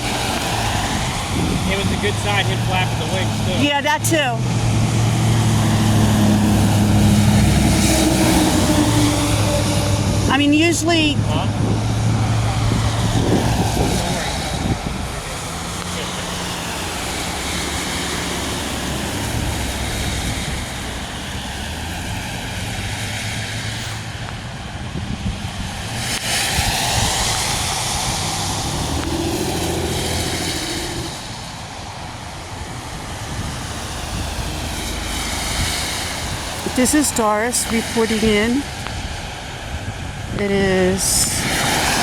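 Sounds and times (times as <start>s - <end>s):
tyre hiss on wet road: 0.0s - 3.7s, 11.8s - 40.4s, 41.2s - 42.0s
low engine hum: 0.0s - 42.0s.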